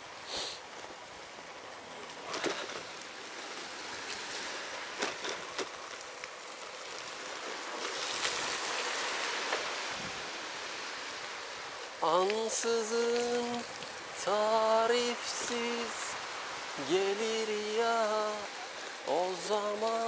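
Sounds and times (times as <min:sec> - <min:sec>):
rain falling: 0:00.0 - 0:20.0
rain taps: 0:04.9 - 0:09.8, 0:11.5 - 0:20.0.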